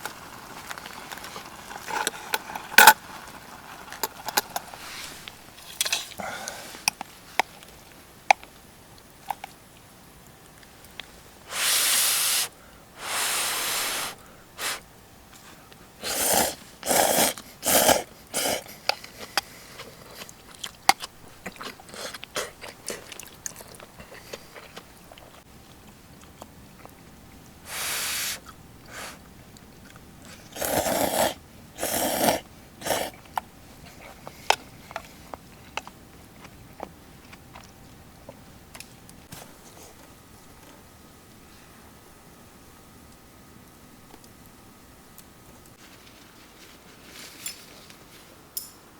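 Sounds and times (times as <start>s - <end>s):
person slurping: 11.5s - 14.8s, 16.0s - 20.4s, 21.5s - 25.3s, 30.3s - 33.3s
chewing sounds: 16.0s - 27.1s, 28.4s - 39.0s.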